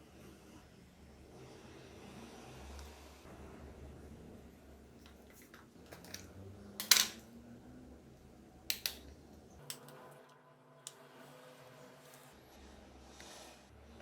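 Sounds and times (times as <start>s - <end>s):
plastic remote control clicks: 8.7s - 9.0s.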